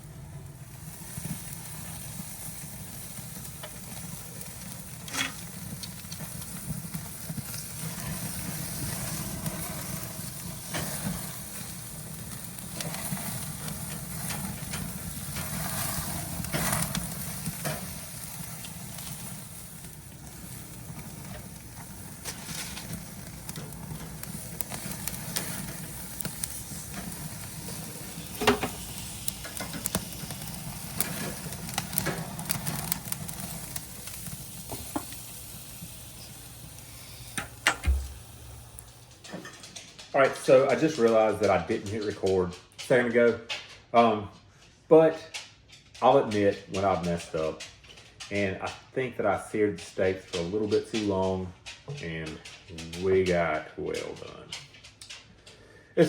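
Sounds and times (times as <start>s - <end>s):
food sizzling on grill: 0.0s - 43.2s
cooking utensils clicking: 22.4s - 33.2s.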